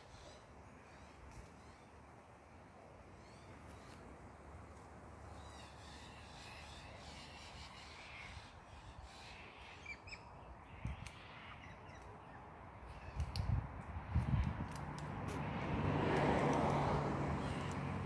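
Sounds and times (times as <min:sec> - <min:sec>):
light clicks: 0:16.1 - 0:16.9.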